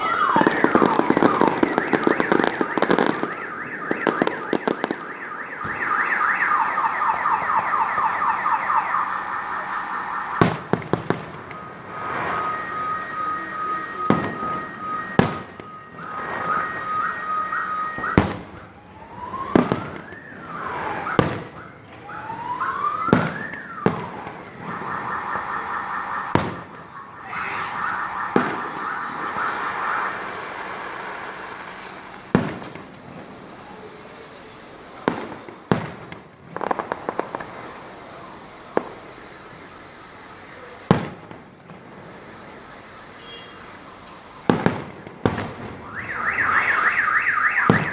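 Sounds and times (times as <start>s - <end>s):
car alarm: 0.0s - 32.6s, 33.6s - 47.9s
firework bangs: 0.0s - 39.7s, 40.4s - 42.9s, 43.6s - 47.9s.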